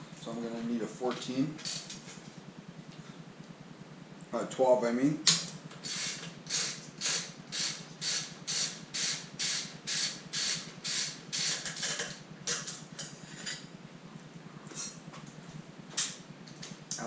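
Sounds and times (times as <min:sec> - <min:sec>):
ratchet wrench clicking: 0:05.3 - 0:12.8.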